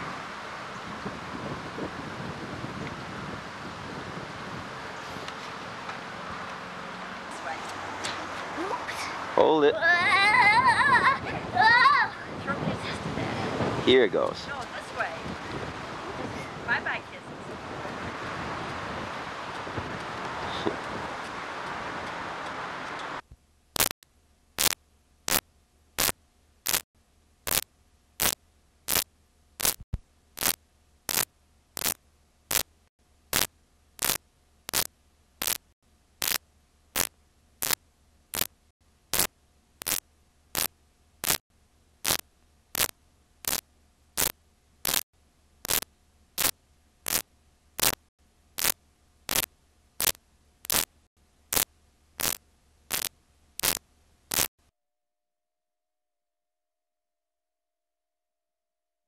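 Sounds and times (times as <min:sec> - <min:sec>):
sharp static clicks: 0:22.0 - 0:24.0, 0:24.6 - 0:41.4, 0:42.0 - 0:45.0, 0:45.6 - 0:54.5.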